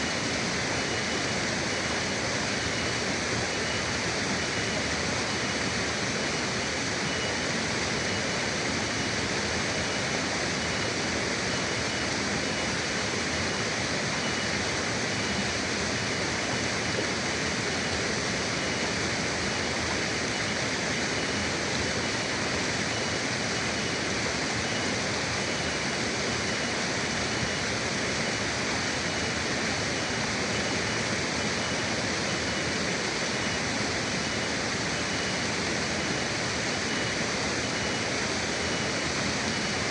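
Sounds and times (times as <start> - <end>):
river water rushing: 0.0 - 39.9
faint steady high tone: 7.0 - 8.4, 9.8 - 16.3.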